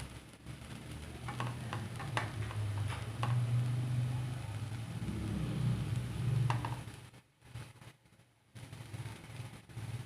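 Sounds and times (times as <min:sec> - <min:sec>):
utensil tapping cooking pot: 0:01.0 - 0:03.9, 0:06.4 - 0:07.1.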